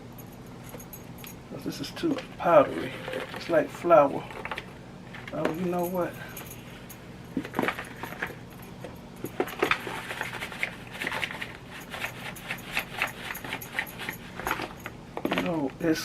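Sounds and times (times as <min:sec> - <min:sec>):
shaker container rattling and tapping: 0:09.2 - 0:15.4.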